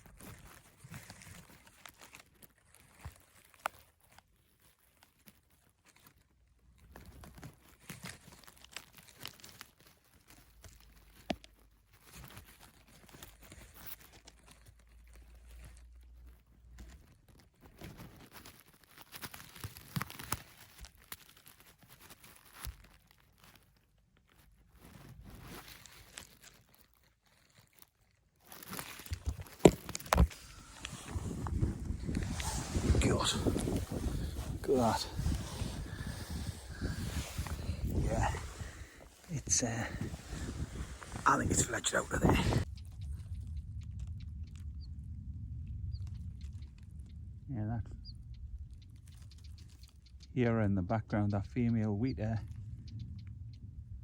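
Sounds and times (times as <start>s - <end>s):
phone rustling and scraping: 24.6s - 27.8s, 28.5s - 42.7s.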